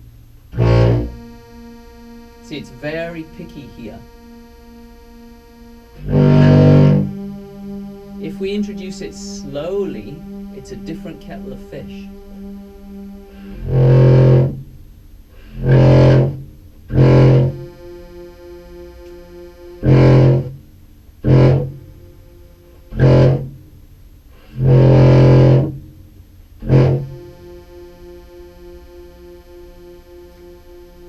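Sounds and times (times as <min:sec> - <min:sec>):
distorted low clarinet notes: 0:00.0 - 0:31.0
pulsing synth tone: 0:00.6 - 0:14.6, 0:16.9 - 0:20.6, 0:21.2 - 0:23.6, 0:26.6 - 0:31.0.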